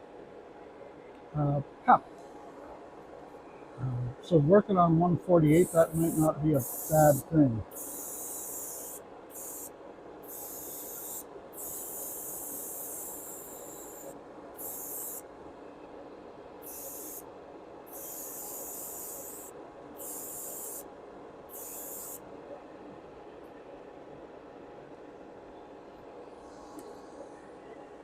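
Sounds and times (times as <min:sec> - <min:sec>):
steady low hum: 0:00.0 - 0:28.0
airbrush hissing: 0:05.4 - 0:15.2, 0:16.6 - 0:17.2, 0:17.9 - 0:20.8, 0:21.5 - 0:22.2.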